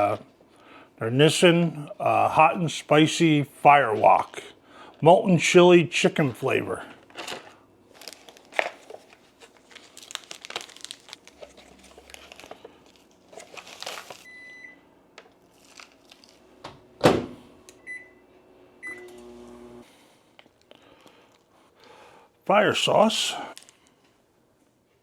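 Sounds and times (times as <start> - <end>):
packaging rustling and clicking: 7.0 - 14.3, 15.5 - 16.4, 23.6 - 24.1
microwave oven humming: 11.1 - 20.2
microwave keypad beeping: 14.2 - 14.9, 17.8 - 19.2.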